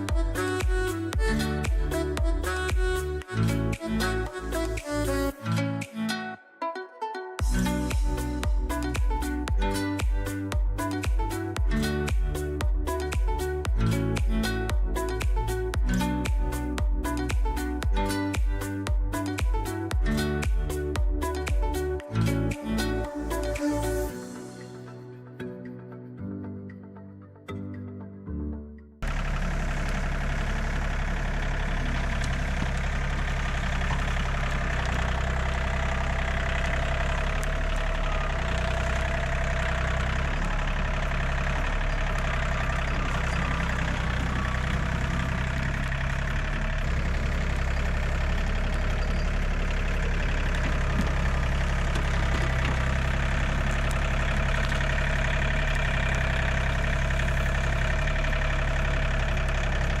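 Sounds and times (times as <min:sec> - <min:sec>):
tractor diesel engine running: 0:00.0 - 0:05.9, 0:07.4 - 0:25.0, 0:29.0 - 1:00.0.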